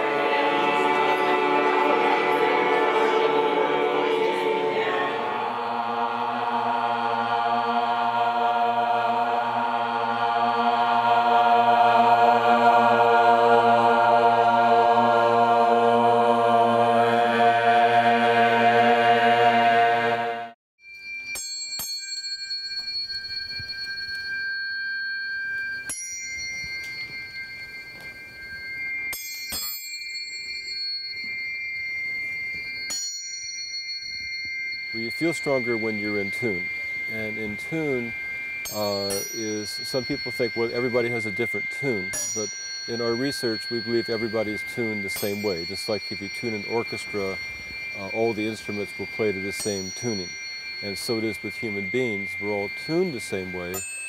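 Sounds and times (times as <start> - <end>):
voices chanting a chord: 0.0 - 20.6, 35.0 - 53.7
tuning forks ringing: 20.8 - 54.0.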